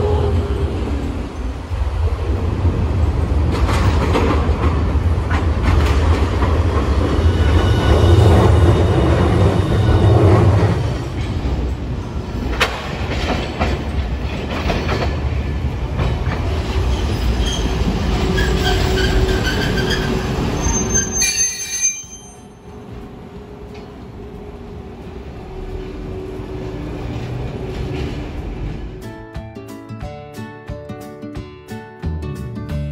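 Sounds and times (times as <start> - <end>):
tram wheels rumbling on rails: 0.0 - 29.2
high squealing of wheels: 16.9 - 22.6.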